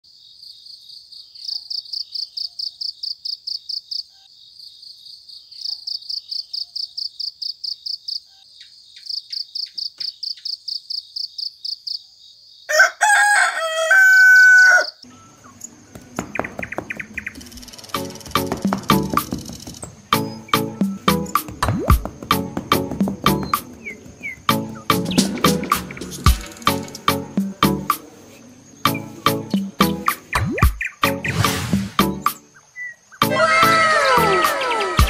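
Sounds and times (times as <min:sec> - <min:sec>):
insect chirping: 0:00.0 - 0:13.0, 0:14.7 - 0:35.0
rooster crowing: 0:12.7 - 0:15.1.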